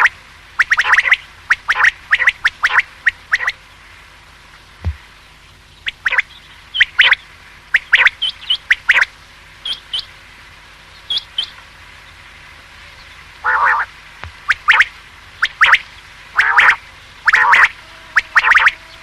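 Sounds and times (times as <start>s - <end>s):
quail calling: 0.0s - 3.7s, 5.8s - 10.1s, 12.9s - 19.0s.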